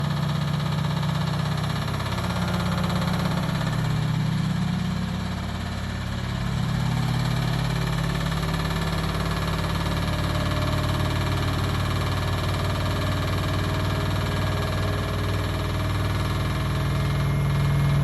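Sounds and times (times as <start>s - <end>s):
washing machine humming: 6.1s - 18.0s.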